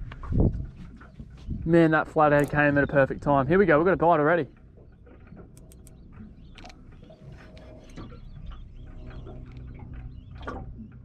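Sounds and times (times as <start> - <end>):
low steady hum: 0.0 - 11.0
faint bird chirps: 4.4 - 11.0
small clicks: 4.5 - 11.0.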